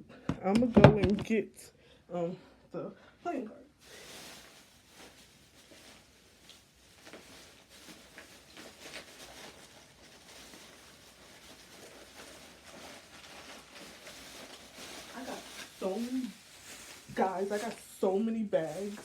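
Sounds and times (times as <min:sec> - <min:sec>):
rustling through bags: 0:03.8 - 0:19.0.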